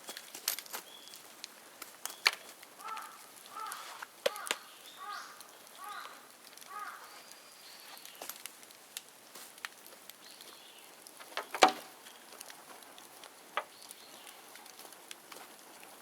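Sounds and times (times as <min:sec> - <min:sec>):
bonfire crackling: 0:00.0 - 0:16.0
sharp pops and cracks: 0:00.0 - 0:16.0
bird call: 0:02.1 - 0:08.3.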